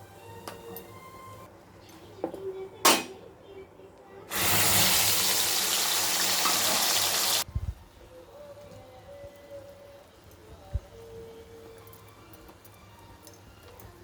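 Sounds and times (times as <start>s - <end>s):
kitchen tap running: 4.3s - 7.4s.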